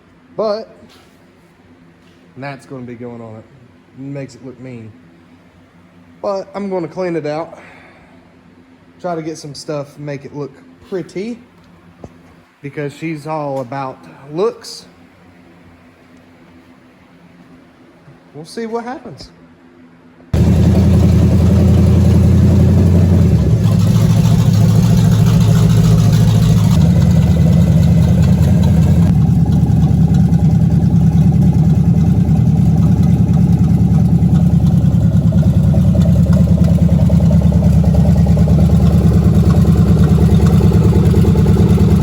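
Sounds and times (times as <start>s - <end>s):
pickup engine running: 20.4s - 42.0s.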